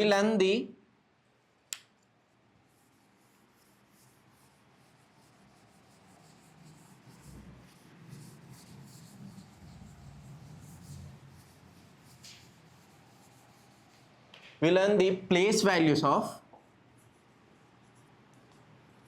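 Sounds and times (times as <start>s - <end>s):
pen scratching on paper: 2.6s - 14.2s.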